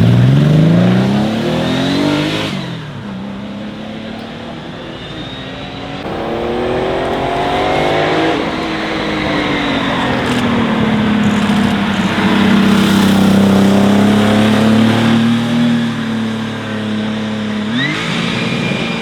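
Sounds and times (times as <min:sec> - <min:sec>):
car engine running and revving: 0:05.9 - 0:19.0.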